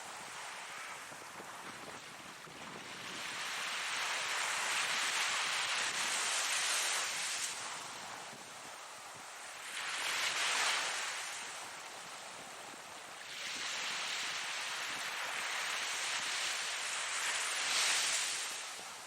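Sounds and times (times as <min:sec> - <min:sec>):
ocean waves breaking: 0:09.1 - 0:19.0.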